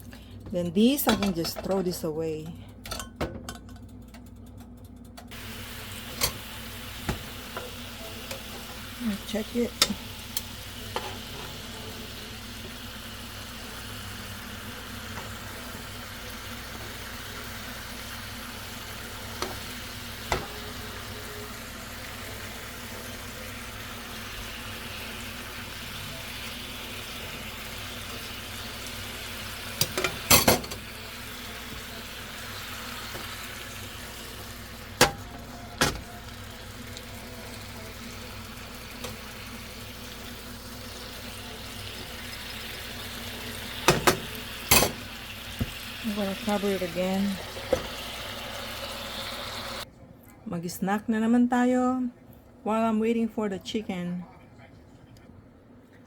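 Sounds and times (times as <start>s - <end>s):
chicken sizzling in a pan: 5.3s - 49.8s.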